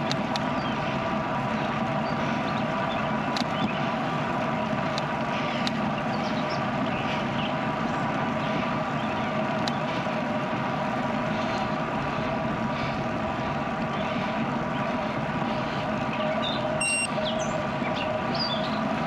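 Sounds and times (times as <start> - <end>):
faint high ticks: 0.0 - 0.5, 4.9 - 5.8
bicycle tyre hum: 0.0 - 19.0.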